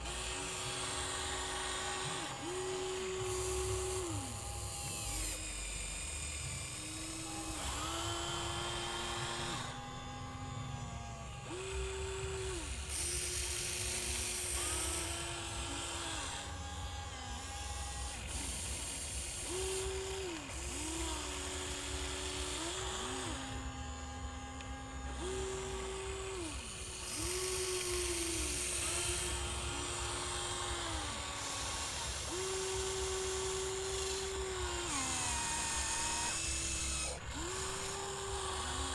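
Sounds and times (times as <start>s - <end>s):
small electric motors whining: 0.0s - 38.9s
steady low hum: 0.0s - 38.9s.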